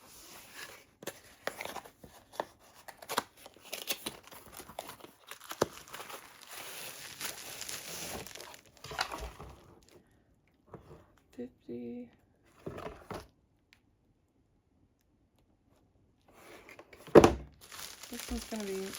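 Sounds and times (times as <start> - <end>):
plastic packaging crinkling: 2.9 - 10.0, 17.6 - 18.9.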